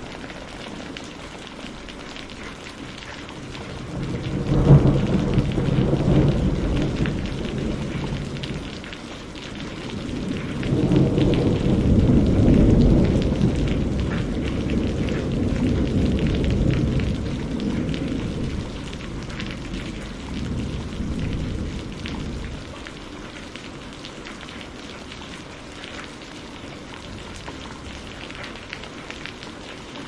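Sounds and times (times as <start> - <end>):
steady rain: 0.0 - 30.0
thunder rumbling: 3.3 - 23.0.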